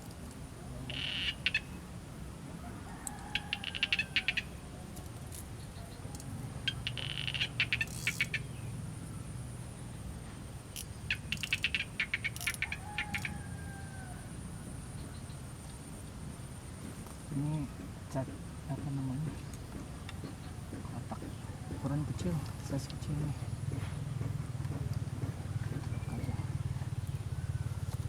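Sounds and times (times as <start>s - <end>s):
animal call of rapid clicks: 2.9s - 4.5s, 6.1s - 8.4s, 10.8s - 14.2s.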